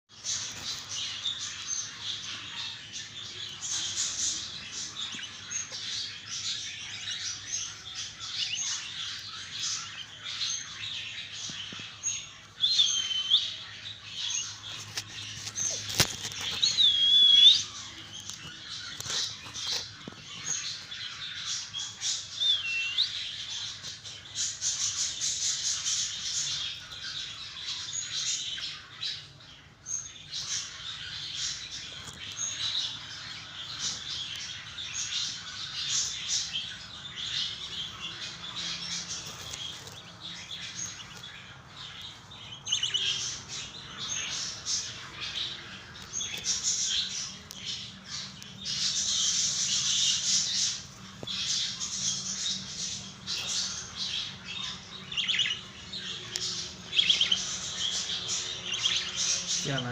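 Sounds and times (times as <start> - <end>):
budgerigar chicks chirping: 0.1 - 59.9
drawn-out bird calls: 40.5 - 59.9.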